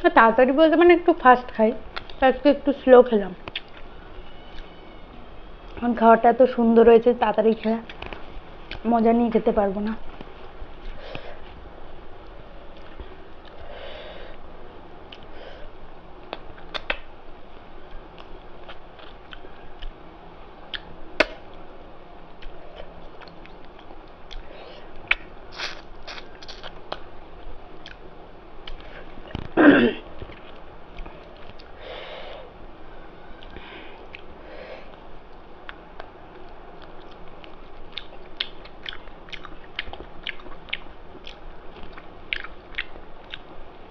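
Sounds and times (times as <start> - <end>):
mouth clicks while eating: 3.4 - 3.9, 16.3 - 17.1, 35.6 - 43.5
person chewing food: 3.5 - 3.9, 18.1 - 20.0, 22.4 - 27.1, 27.8 - 29.0, 35.6 - 43.5.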